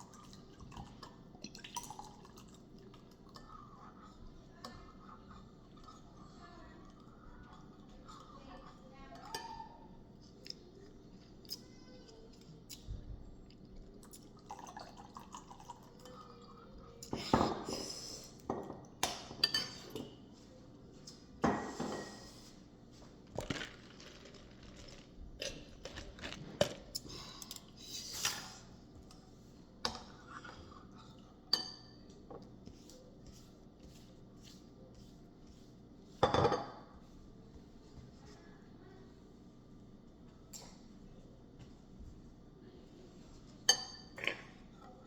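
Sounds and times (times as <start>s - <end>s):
dishes and utensils clinking: 18.4s - 20.2s, 36.2s - 36.9s.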